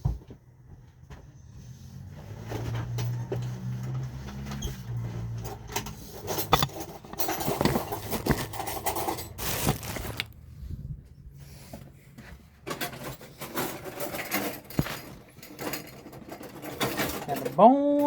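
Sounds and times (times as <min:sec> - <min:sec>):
dishes and cutlery clinking: 0:05.9 - 0:09.8.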